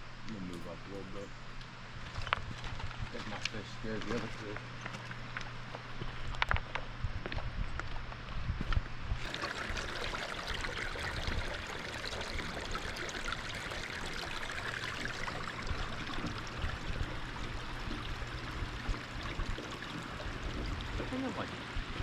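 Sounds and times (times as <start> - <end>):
stream water rushing: 9.2 - 22.0.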